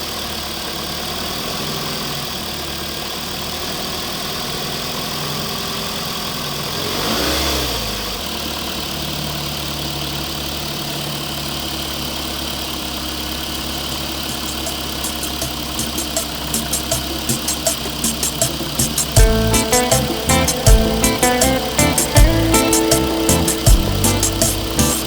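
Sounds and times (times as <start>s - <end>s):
toy truck engine idling: 0.0s - 7.0s, 7.9s - 25.0s
sharp regular clicks: 14.2s - 23.0s.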